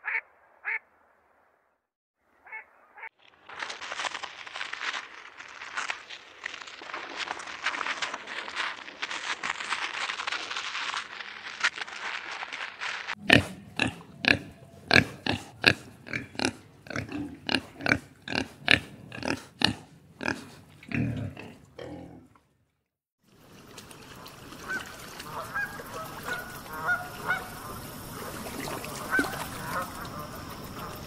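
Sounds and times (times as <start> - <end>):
dry rustling crackle: 3.2 - 14.6
pigs grunting: 13.2 - 22.4.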